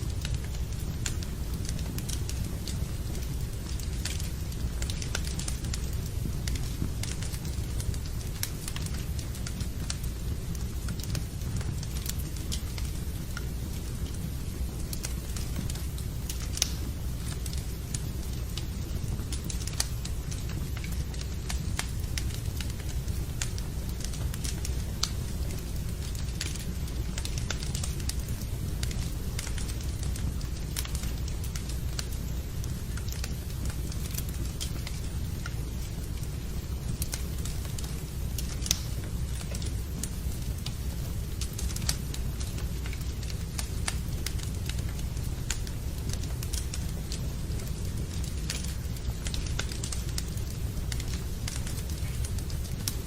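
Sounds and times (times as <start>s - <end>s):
rain: 0.0s - 53.0s
steady low rumble: 0.0s - 53.0s
wood fire crackling and popping: 0.0s - 53.0s.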